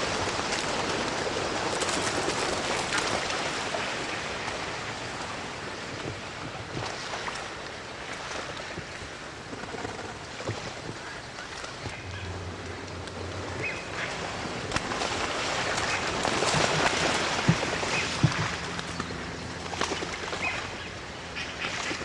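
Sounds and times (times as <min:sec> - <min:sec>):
ducks' wings rushing: 0:00.0 - 0:05.4, 0:10.6 - 0:22.0
water splashing: 0:00.0 - 0:22.0.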